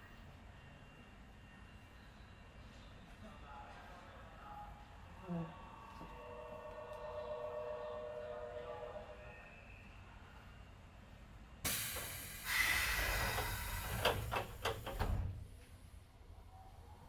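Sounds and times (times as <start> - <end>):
air hiss of train doors: 11.6 - 15.8.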